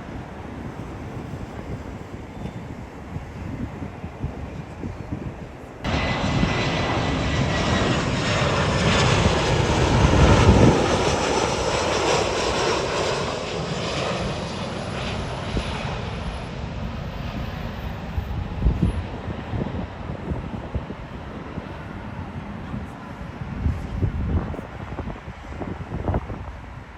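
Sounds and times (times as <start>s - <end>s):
jet engines passing: 0.0s - 26.9s.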